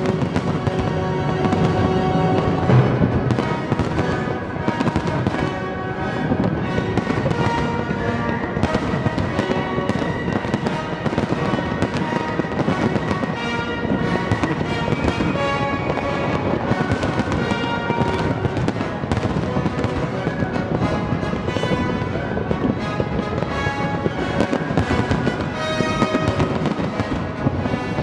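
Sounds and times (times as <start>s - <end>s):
fireworks bangs and bursts: 0.0s - 28.0s
music playing: 0.0s - 28.0s.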